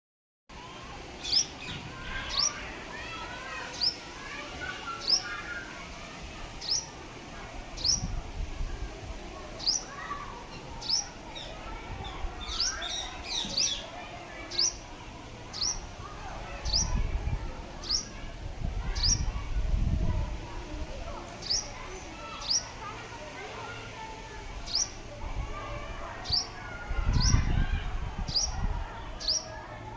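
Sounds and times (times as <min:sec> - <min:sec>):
birds twittering: 0:01.1 - 0:05.9, 0:06.5 - 0:07.1, 0:07.8 - 0:08.2, 0:09.5 - 0:17.0, 0:17.8 - 0:18.2, 0:18.9 - 0:19.4, 0:21.4 - 0:22.9, 0:24.6 - 0:25.0, 0:25.6 - 0:29.6.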